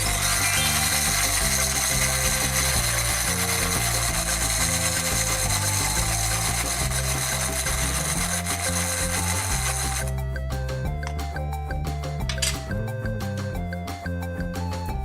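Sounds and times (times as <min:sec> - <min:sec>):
small electric motor whirring: 0:00.0 - 0:10.2
music with stepping bass line: 0:05.2 - 0:15.0.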